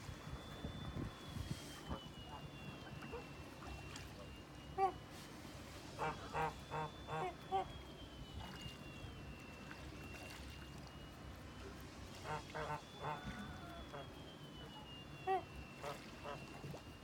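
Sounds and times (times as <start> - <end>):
waterfowl honking: 5.9 - 7.7, 12.2 - 14.1, 15.3 - 16.6.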